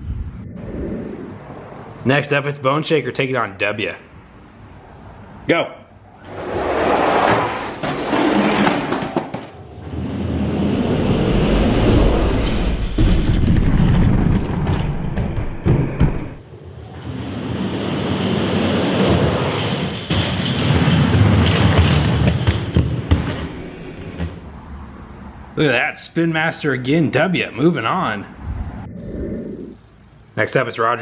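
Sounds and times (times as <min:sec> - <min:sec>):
toy trucks rolling on plastic track: 0:06.3 - 0:09.6.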